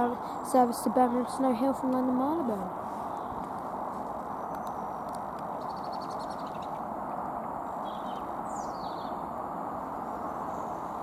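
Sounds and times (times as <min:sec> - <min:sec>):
small birds chirping: 0:00.0 - 0:06.9, 0:07.5 - 0:09.4
steady rushing background noise: 0:00.0 - 0:11.0.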